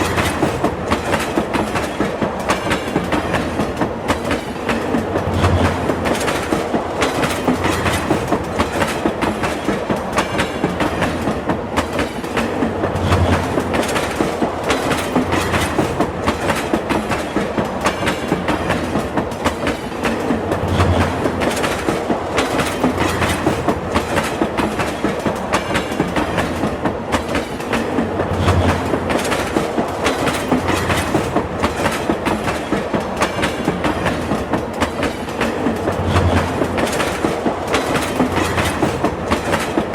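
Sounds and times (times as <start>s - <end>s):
train wheels clacking over rail joints: 0.0s - 39.9s.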